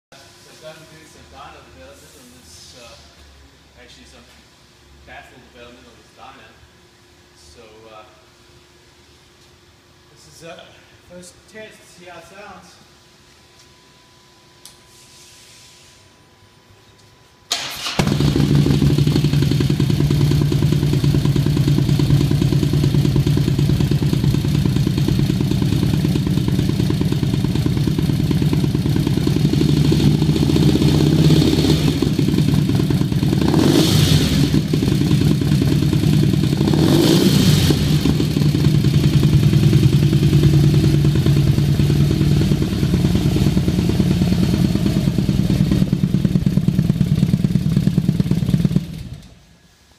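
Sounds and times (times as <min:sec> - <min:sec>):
motorcycle engine idling and revving: 0:18.0 - 0:49.4.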